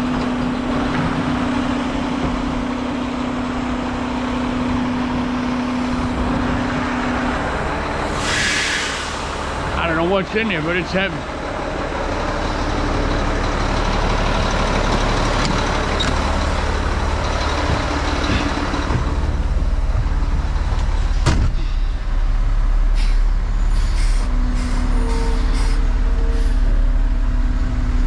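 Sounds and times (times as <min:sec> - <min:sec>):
truck diesel engine running: 0:00.0 - 0:28.0.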